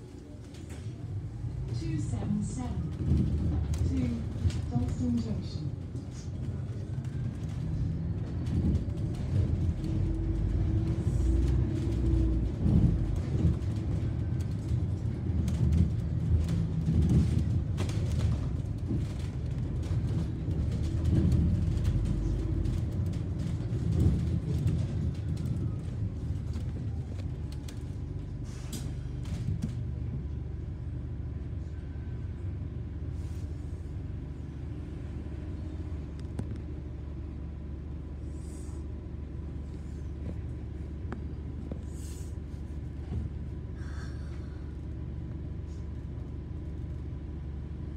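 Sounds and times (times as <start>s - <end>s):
bus engine and road rumble: 0.0s - 47.9s.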